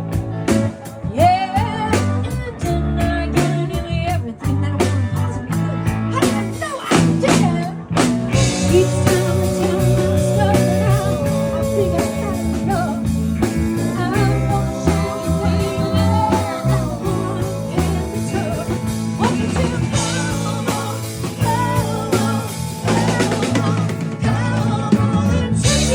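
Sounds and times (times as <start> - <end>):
guitar: 0.0 - 25.9
rock band playing blues: 0.0 - 25.9
voice holding long notes: 8.4 - 24.0.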